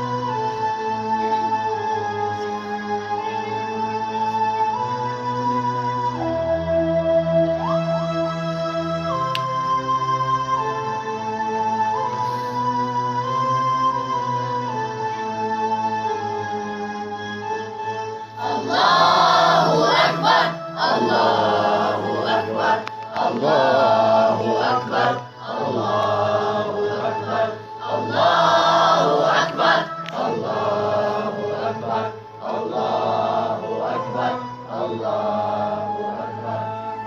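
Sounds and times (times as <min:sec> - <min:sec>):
instrumental accompaniment: 0:00.0 - 0:37.0
group of voices singing: 0:18.4 - 0:37.0.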